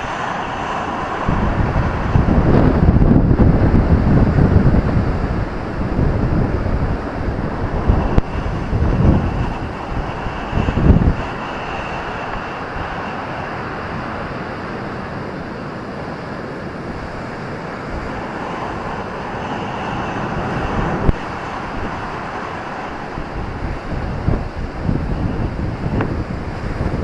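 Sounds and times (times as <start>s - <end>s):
ocean waves breaking: 0.0s - 27.0s
wind buffeting the microphone: 0.0s - 27.0s.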